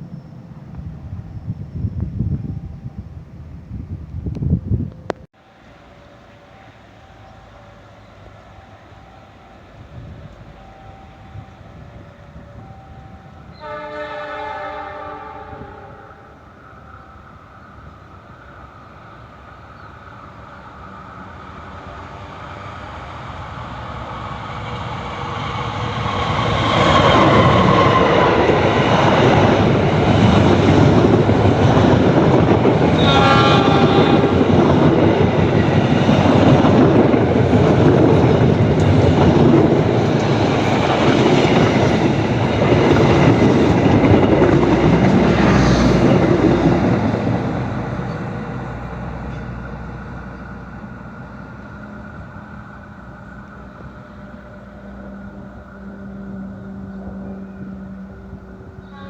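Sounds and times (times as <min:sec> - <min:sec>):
diesel locomotive rumble: 0:00.0 - 0:59.0
locomotive chord horn: 0:13.4 - 0:16.5, 0:32.7 - 0:35.3, 0:54.0 - 0:59.0
wheels clattering on rail joints: 0:34.2 - 0:50.5.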